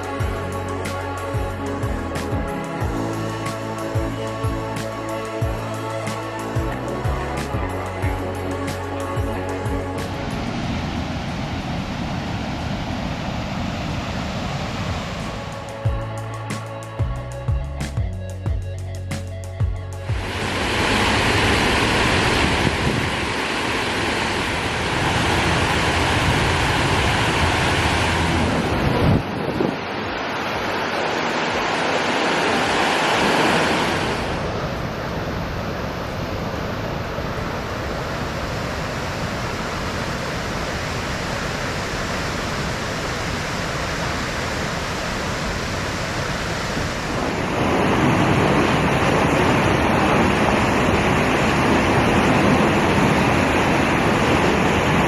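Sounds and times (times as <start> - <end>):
wind rushing over microphone: 0.0 - 16.4, 20.1 - 55.0.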